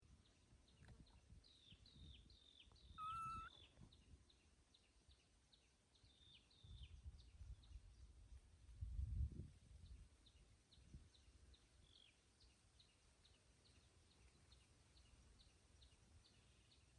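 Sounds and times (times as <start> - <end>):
faint bird chirping: 0.0 - 8.2, 9.8 - 16.9
whistled bird call: 2.8 - 3.7.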